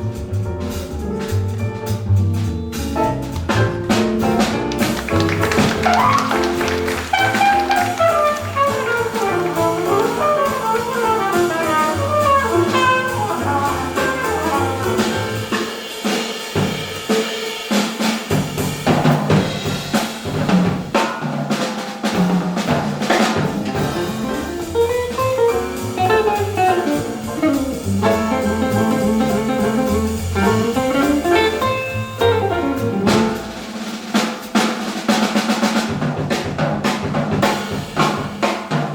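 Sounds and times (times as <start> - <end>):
double bass: 0.0 - 15.7, 22.6 - 34.2
drum kit with rimshots and cymbals: 0.0 - 38.9.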